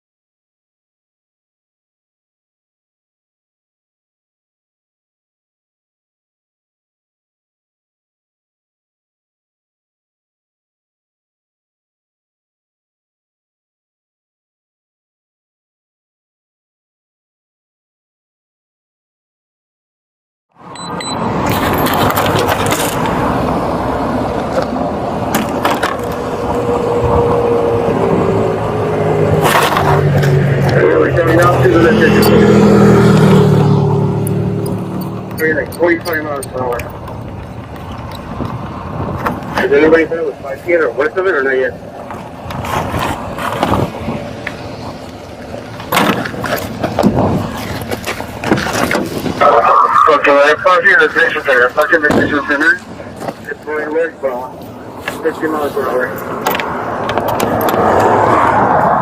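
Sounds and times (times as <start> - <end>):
engine and road noise: 20.5 - 59.0
vehicle rumble: 20.6 - 59.0.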